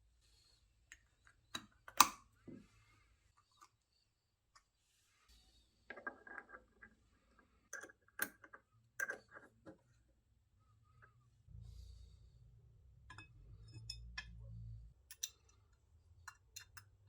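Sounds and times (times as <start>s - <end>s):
low hum: 11.4s - 15.1s.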